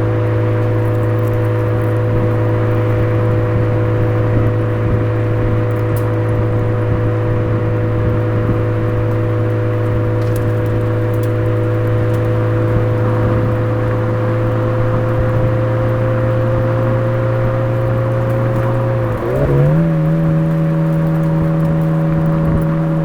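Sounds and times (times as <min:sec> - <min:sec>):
car engine droning: 0:00.0 - 0:23.0.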